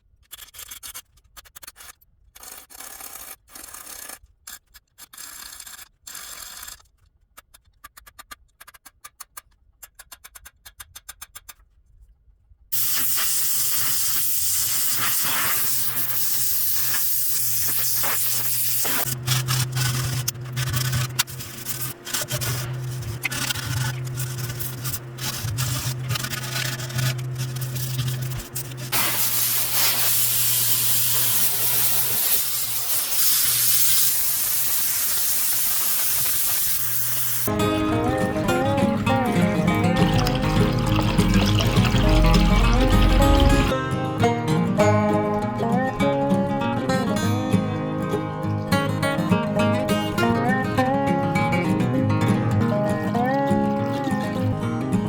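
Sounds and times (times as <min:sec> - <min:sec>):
spraying hiss: 0:12.8 - 0:19.1, 0:28.9 - 0:37.5
low motor hum: 0:19.0 - 0:32.9, 0:36.8 - 0:43.7.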